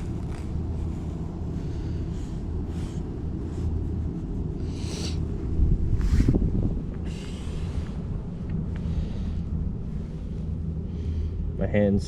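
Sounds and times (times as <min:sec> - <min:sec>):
rustling swishes: 0:00.0 - 0:10.7
steady low rumble: 0:00.0 - 0:12.0
wind buffeting microphone: 0:05.2 - 0:10.2.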